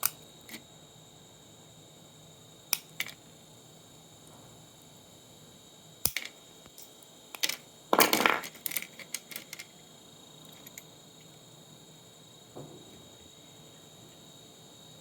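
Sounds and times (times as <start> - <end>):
sharp clicks of parts: 0.0 - 0.6, 2.7 - 3.2, 6.0 - 9.7
small parts and tools clattering: 2.8 - 3.2, 6.0 - 9.8, 10.5 - 10.9.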